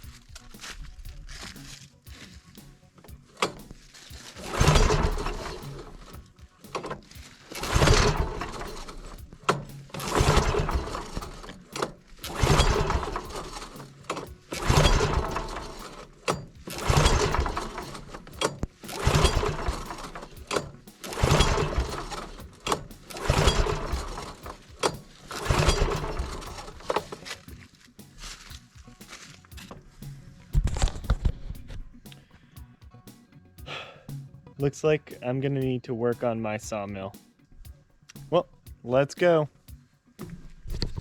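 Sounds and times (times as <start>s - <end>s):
small engine pull-start attempts: 0.0s - 32.3s.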